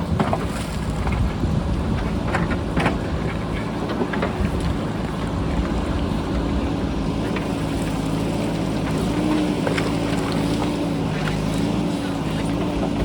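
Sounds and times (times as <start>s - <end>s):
wind noise: 0.0s - 8.2s
diesel engine running: 0.0s - 13.0s.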